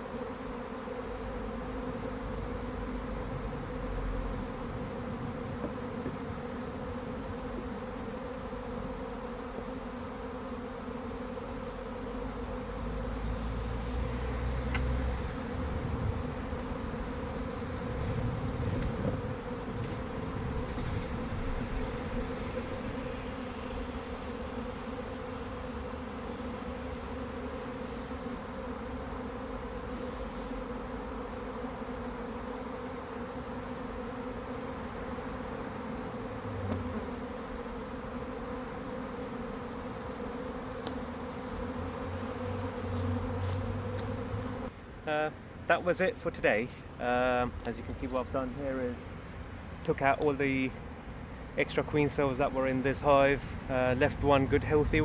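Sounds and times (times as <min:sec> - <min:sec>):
honey bees buzzing: 0:00.0 - 0:55.0
low rumbles: 0:36.4 - 0:37.0.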